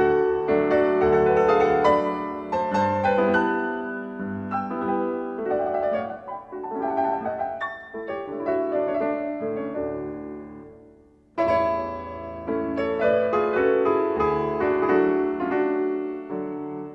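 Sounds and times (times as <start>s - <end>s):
slow piano music: 0.0s - 16.9s.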